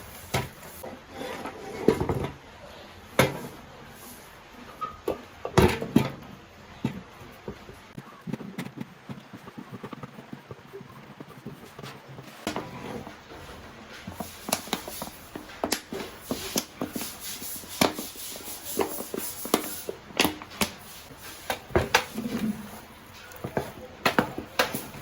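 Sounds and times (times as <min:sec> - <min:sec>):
kitchen clicks and knocks: 0:12.4 - 0:25.0.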